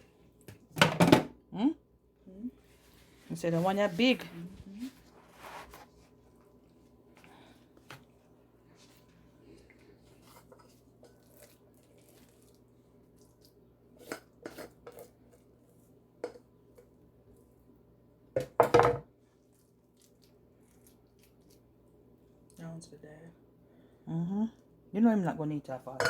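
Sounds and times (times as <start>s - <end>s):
low steady hum: 0.0s - 26.0s
dishes clattering: 18.4s - 19.1s.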